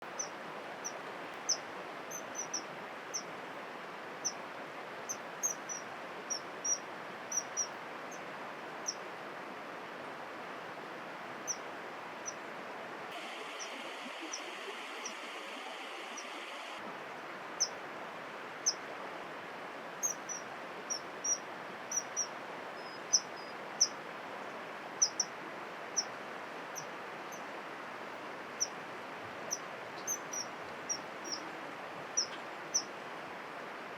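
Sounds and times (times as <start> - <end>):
steady outdoor hiss: 0.0 - 33.9
small birds chirping: 0.2 - 3.3, 5.1 - 7.8, 13.1 - 16.8, 20.0 - 24.0, 25.0 - 25.3, 29.5 - 32.9.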